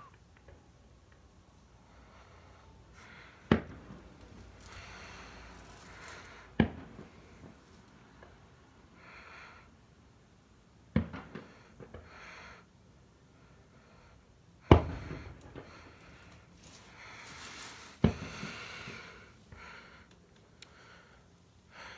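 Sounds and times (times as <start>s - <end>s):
fireworks bangs: 3.4s - 7.7s, 14.7s - 17.2s, 18.0s - 19.2s
fireworks fizzing: 3.4s - 7.9s, 14.7s - 19.9s.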